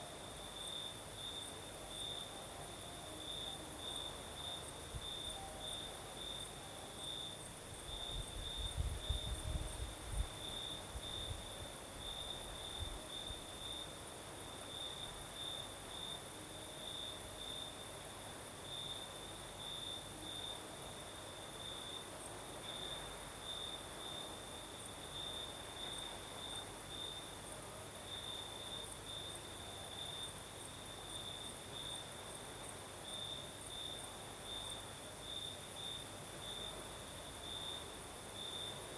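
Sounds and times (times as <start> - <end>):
cricket chirping: 0.0 - 38.9
wind rumble on microphone: 7.8 - 13.4.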